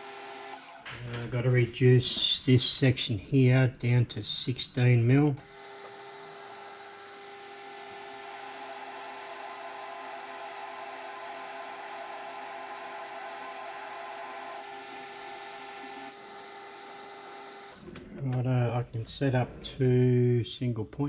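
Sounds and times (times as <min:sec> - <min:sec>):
cutting tool hissing on metal: 0:00.0 - 0:00.8, 0:05.4 - 0:17.8
lathe motor whine: 0:00.0 - 0:00.9, 0:05.4 - 0:18.0.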